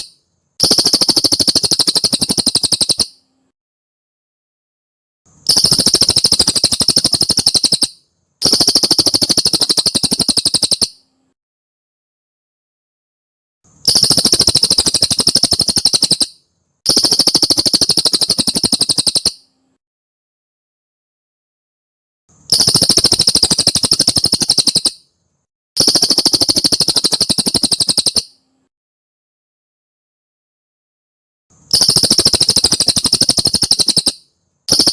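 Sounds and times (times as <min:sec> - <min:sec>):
bird trilling: 0:00.0 - 0:03.2, 0:05.5 - 0:11.0, 0:13.9 - 0:19.4, 0:22.5 - 0:25.0, 0:25.8 - 0:28.4, 0:31.7 - 0:34.9.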